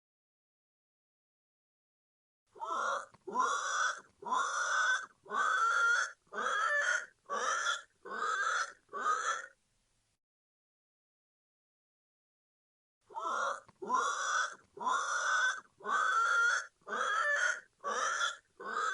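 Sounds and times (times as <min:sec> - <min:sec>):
pig calling: 0:02.6 - 0:09.6, 0:13.1 - 0:18.9.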